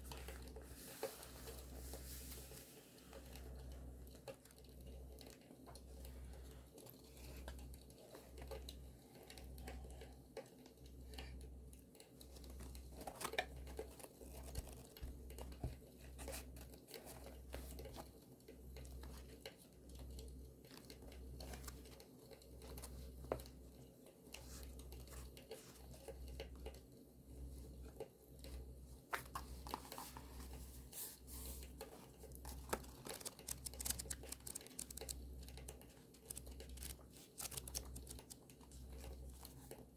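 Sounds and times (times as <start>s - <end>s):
small clicks and crackles: 0.0s - 30.6s, 31.6s - 39.9s
paper tearing and crinkling: 32.8s - 35.2s, 36.3s - 38.4s.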